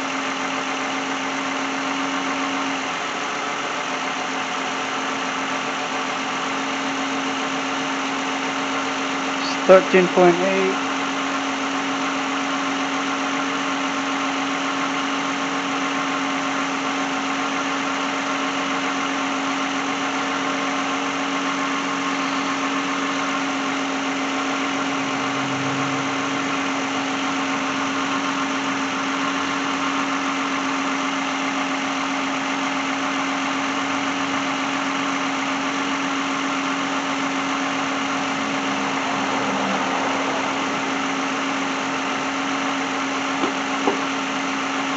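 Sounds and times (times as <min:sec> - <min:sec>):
car engine idling: 0:00.0 - 0:44.9.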